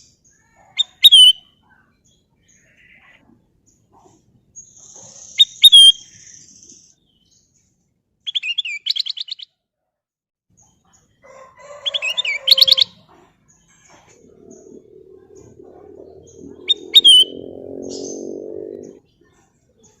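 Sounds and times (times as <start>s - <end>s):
bird singing chirpy whistles: 15.3s - 19.0s.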